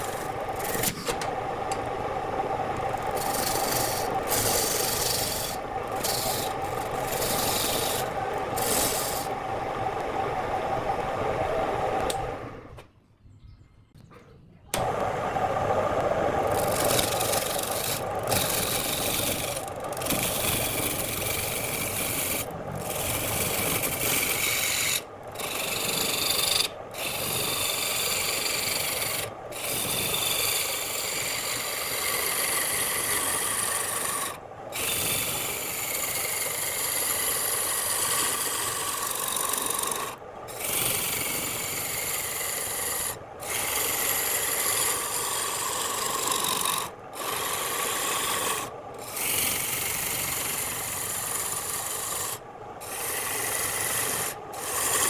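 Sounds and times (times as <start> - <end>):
lathe tool scraping wood: 0.0 - 12.7, 14.8 - 55.0.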